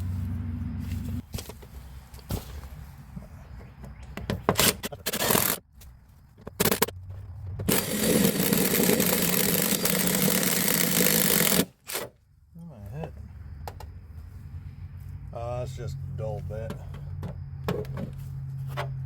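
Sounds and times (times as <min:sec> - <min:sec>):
knocks and scrapes: 0:00.0 - 0:07.7, 0:16.6 - 0:19.0
electric drill boring through wood: 0:07.7 - 0:12.0.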